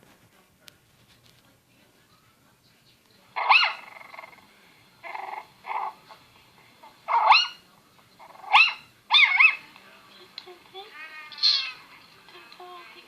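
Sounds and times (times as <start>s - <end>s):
young animal high-pitched cries: 3.4s - 4.3s, 7.1s - 7.6s, 8.3s - 9.6s, 11.2s - 11.8s.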